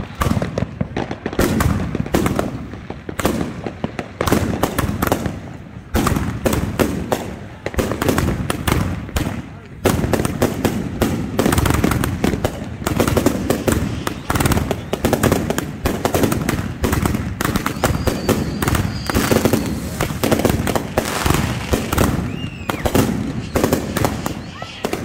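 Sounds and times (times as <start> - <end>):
fireworks bangs and crackles: 0.0 - 25.0
faint high whistle: 17.5 - 20.2, 22.2 - 25.0.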